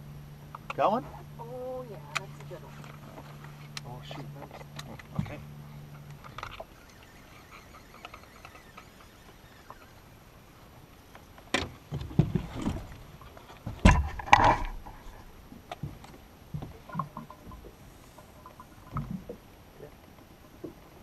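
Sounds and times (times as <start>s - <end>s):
knocks inside a boat: 11.5s - 13.0s, 13.6s - 15.0s, 15.7s - 17.8s.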